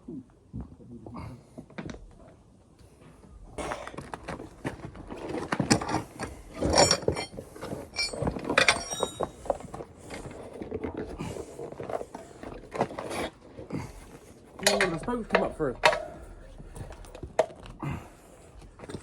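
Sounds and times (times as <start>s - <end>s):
metal tools clattering on wheel rim: 4.7s - 17.8s, 18.4s - 19.0s.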